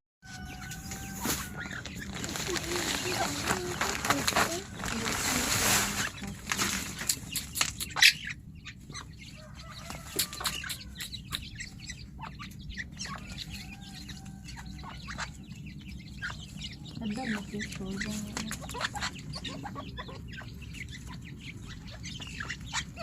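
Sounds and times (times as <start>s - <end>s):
birds clucking softly: 0.2s - 23.0s
chicks peeping faintly: 0.2s - 23.0s
sharp clicks and rustles: 0.8s - 8.0s.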